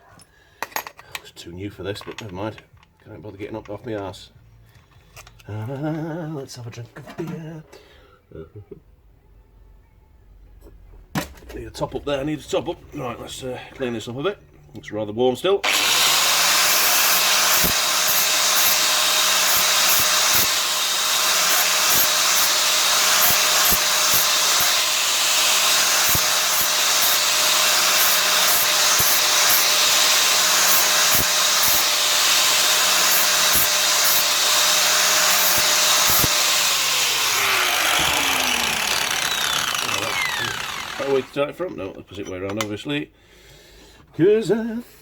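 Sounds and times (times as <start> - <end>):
angle grinder on sheet metal: 15.6 - 41.5.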